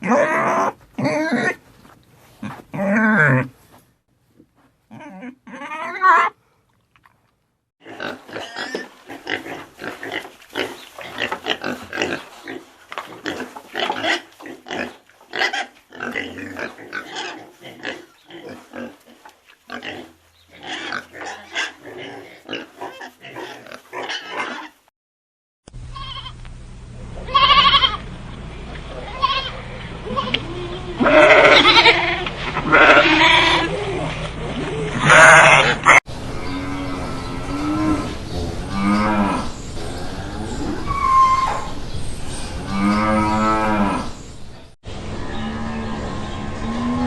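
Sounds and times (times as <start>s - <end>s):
pigs grunting and oinking: 0.0s - 1.6s, 2.4s - 3.6s, 4.9s - 6.4s, 7.8s - 24.8s, 29.0s - 41.8s
low steady hum: 25.7s - 31.1s
goat bleating: 25.9s - 26.4s, 27.2s - 28.0s, 29.0s - 34.0s, 34.9s - 36.0s.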